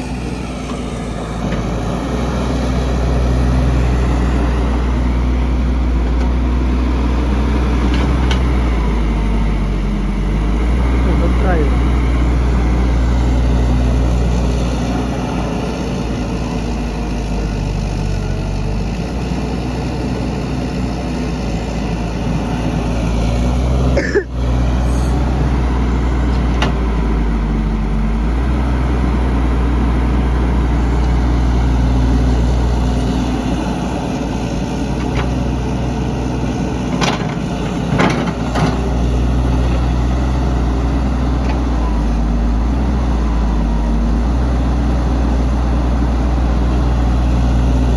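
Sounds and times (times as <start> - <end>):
heavy diesel engine running: 0.0 - 47.9.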